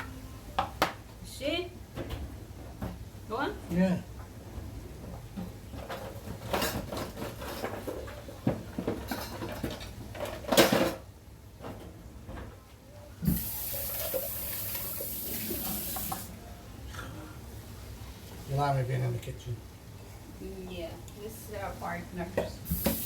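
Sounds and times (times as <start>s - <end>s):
dishes knocking and clattering: 5.0s - 12.5s
tap water running: 13.2s - 16.4s, 22.6s - 23.0s.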